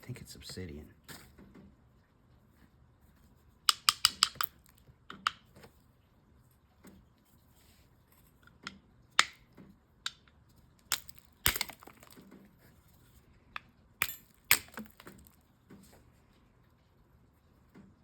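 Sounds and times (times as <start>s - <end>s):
stone slabs knocking: 10.9s - 12.2s, 14.0s - 15.3s.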